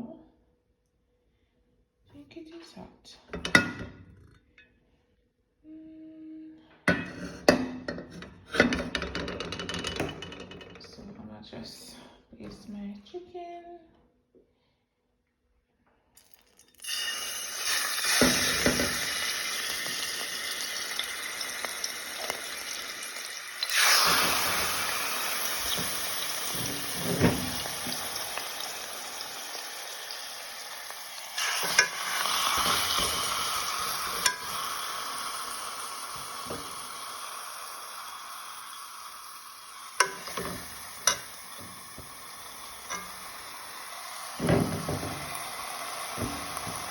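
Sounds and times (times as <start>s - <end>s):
chicken sizzling in a pot: 16.2s - 46.9s.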